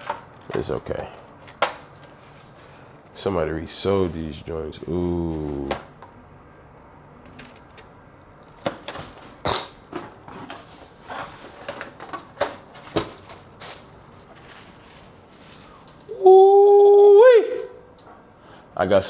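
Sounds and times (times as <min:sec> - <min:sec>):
shoe box and packing rustling: 0:00.0 - 0:06.0, 0:07.3 - 0:16.1.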